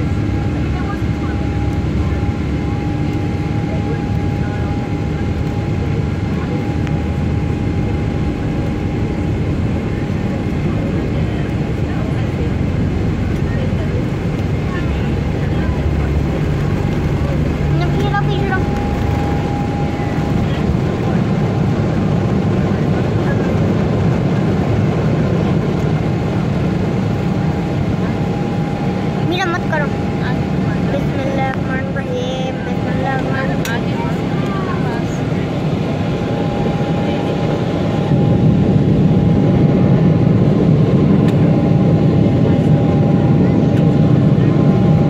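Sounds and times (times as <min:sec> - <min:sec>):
airliner engines in cabin: 0:00.0 - 0:45.0.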